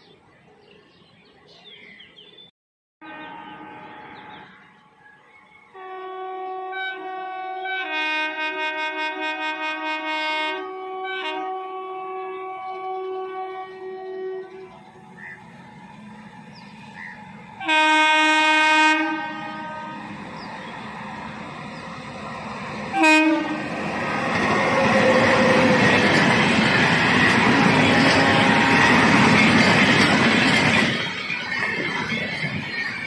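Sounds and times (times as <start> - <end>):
locomotive horn: 3.0 - 4.8, 5.7 - 15.3, 17.6 - 20.2, 22.9 - 29.4
train wheels clattering: 23.7 - 33.0.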